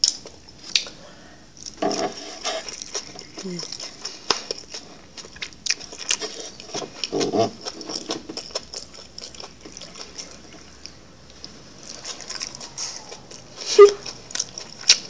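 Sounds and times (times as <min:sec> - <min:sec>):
chewing with wet clicks: 0:00.0 - 0:01.0, 0:01.6 - 0:15.0
lip smacks: 0:00.0 - 0:01.0.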